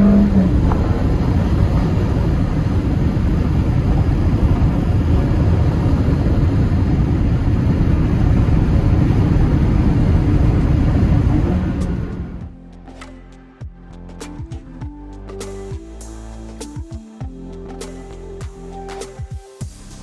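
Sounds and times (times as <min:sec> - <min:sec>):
wind and road noise in car: 0:00.0 - 0:12.5.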